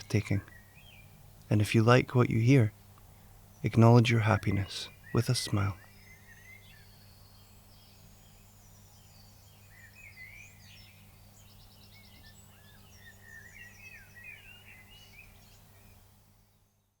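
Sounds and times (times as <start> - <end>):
steady low hum: 0.0 - 9.8
songbirds singing: 0.0 - 17.0.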